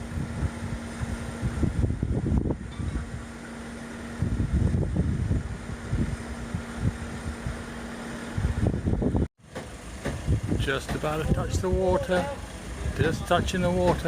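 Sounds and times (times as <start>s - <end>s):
wind buffeting microphone: 0.0s - 9.3s, 10.1s - 14.0s
boat hoist engine humming: 0.0s - 14.0s.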